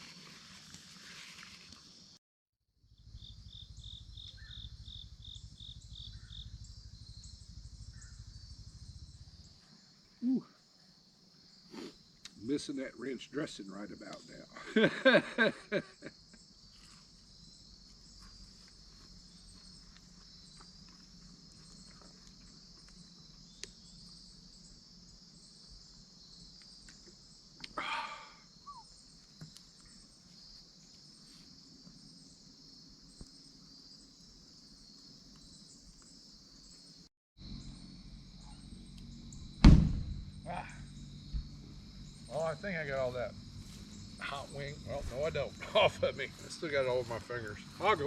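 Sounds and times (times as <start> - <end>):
crickets chirping: 0.0 - 2.2, 2.8 - 48.0
person murmuring: 10.2 - 10.6, 27.8 - 28.4.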